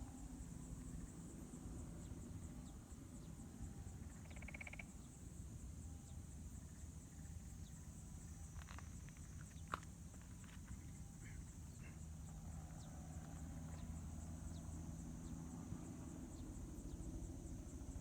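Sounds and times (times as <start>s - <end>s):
insects trilling: 2.0s - 5.4s.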